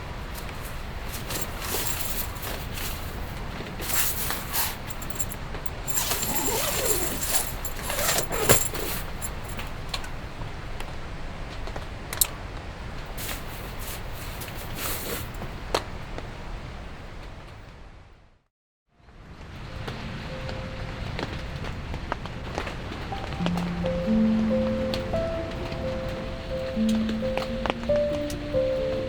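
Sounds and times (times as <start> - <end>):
rain hiss: 0.1 - 11.5, 12.8 - 15.8, 19.5 - 29.0
metallic gear clinking: 1.1 - 3.2, 3.8 - 9.6.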